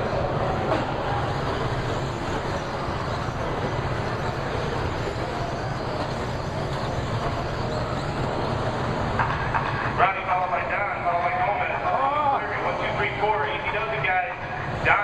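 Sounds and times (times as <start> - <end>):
racing trucks motors and tyres: 0.0 - 10.0.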